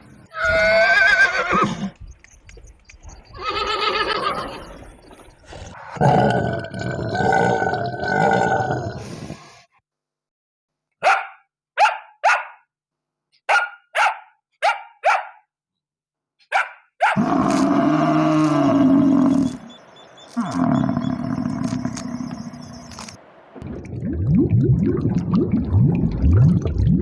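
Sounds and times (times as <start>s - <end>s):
dog barking: 11.0s - 12.7s, 13.5s - 15.5s, 16.4s - 17.2s.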